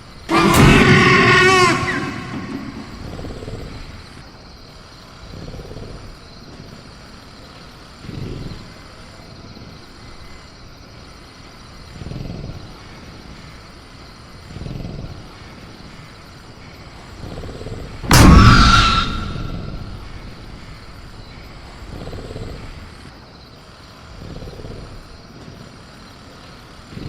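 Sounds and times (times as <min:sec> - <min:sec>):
crickets chirping: 0:00.0 - 0:27.0
loud cage crash: 0:00.3 - 0:04.0, 0:18.1 - 0:21.7
low rumbling growls: 0:00.3 - 0:04.2, 0:17.2 - 0:23.1.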